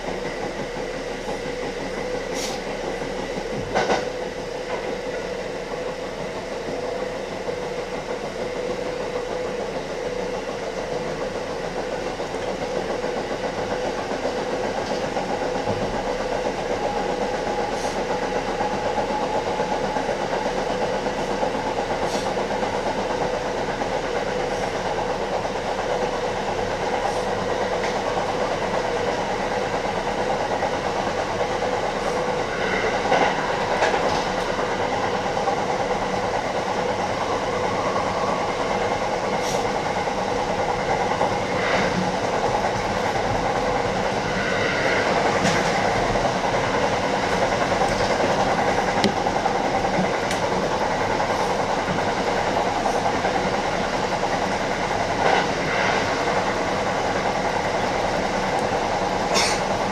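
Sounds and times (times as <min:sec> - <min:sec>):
electric train running on rails: 0:00.0 - 0:59.9.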